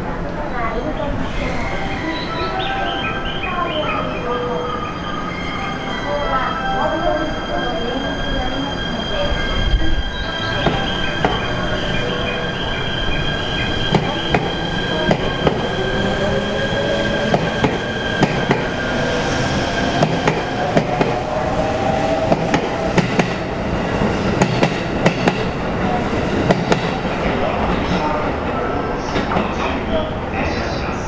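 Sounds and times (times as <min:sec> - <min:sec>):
rumbling rail noise: 0:00.0 - 0:31.0
train wheels squealing: 0:01.2 - 0:23.6.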